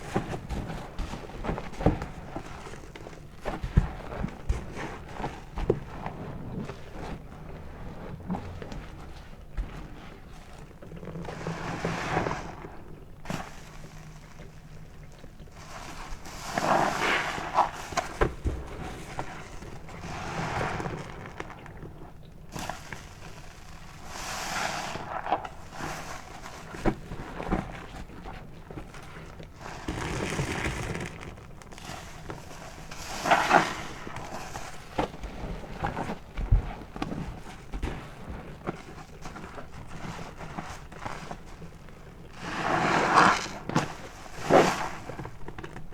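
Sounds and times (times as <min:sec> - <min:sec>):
wet sponge squelching: 0:29.6 - 0:31.5.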